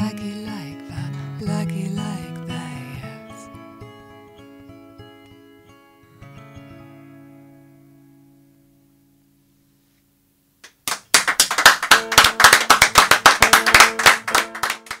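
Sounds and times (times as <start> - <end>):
acoustic guitar chord: 0.0 - 10.0
audience applause: 10.8 - 15.0.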